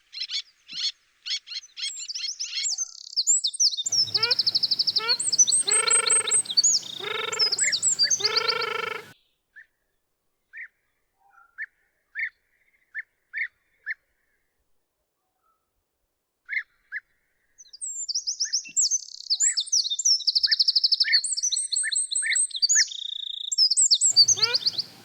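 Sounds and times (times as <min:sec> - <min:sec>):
birds chirping and trilling: 0:03.9 - 0:09.2, 0:24.1 - 0:25.0
longer low bird calls: 0:03.9 - 0:09.2, 0:24.1 - 0:25.0.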